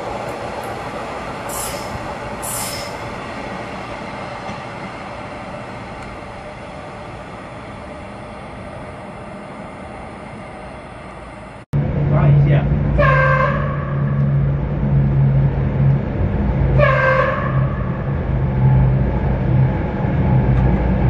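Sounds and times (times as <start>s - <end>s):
electric train wheels rumbling: 0.0s - 21.0s
high wheel squeals: 1.5s - 3.2s.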